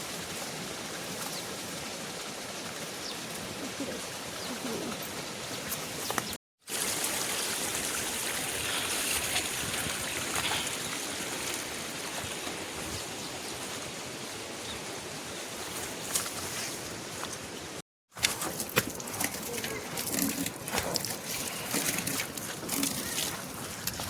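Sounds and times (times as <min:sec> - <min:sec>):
flowing water rushing: 0:00.0 - 0:16.1.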